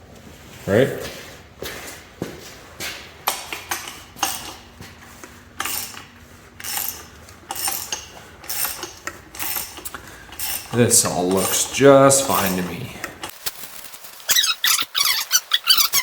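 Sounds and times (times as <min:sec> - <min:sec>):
metal tools clinking and scraping: 0:03.3 - 0:16.0.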